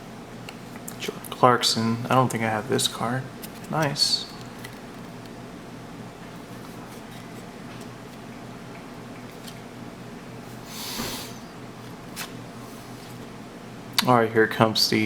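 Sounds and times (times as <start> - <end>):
low room hum: 0.0 - 15.0
trading cards being flipped: 3.4 - 5.4.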